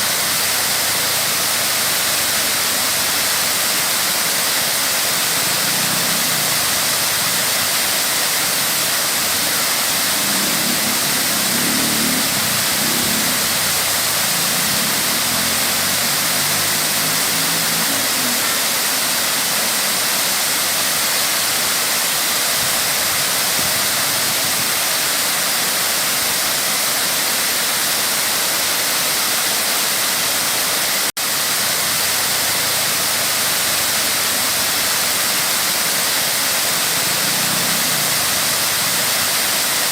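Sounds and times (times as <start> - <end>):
waterfall rushing and splashing: 0.0 - 39.9.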